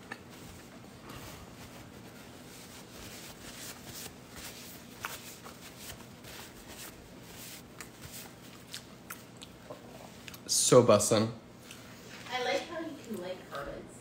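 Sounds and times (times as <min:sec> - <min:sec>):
closed-mouth chewing: 0:00.0 - 0:00.3, 0:07.6 - 0:10.5
paper napkin rustling: 0:00.0 - 0:08.9.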